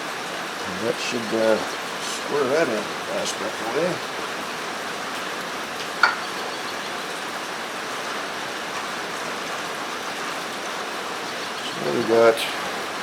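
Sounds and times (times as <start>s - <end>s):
steady background hiss: 0.0s - 7.7s, 11.4s - 13.0s.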